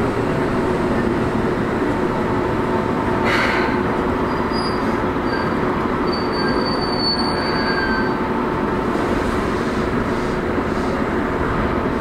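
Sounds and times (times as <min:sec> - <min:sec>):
train wheels rumbling on rail: 0:00.0 - 0:12.0
faint high wheel squeal: 0:04.2 - 0:08.2.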